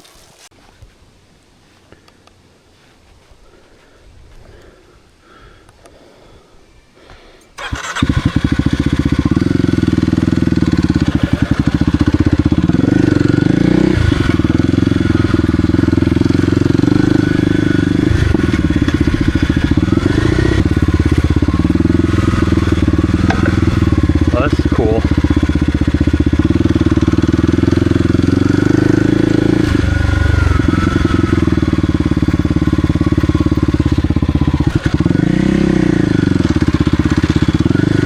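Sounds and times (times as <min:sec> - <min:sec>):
motorcycle engine running: 0:07.6 - 0:38.0.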